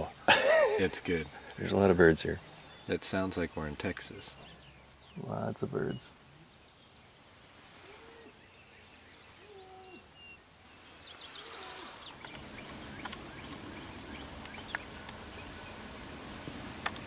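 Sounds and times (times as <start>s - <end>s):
birds calling and chirping: 0.0s - 7.2s, 7.9s - 17.0s
outdoor hiss: 0.0s - 17.0s.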